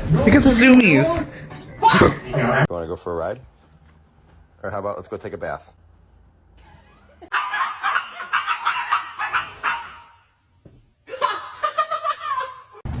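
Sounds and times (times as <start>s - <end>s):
dog yelping whines: 7.3s - 10.2s.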